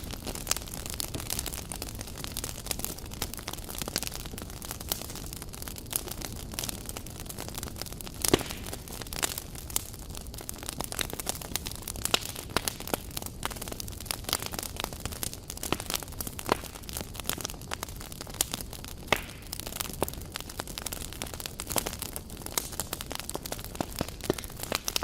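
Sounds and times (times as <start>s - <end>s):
campfire crackling: 0.0s - 25.0s
sharp pops and snaps: 8.2s - 8.7s, 19.1s - 19.5s, 23.8s - 25.0s.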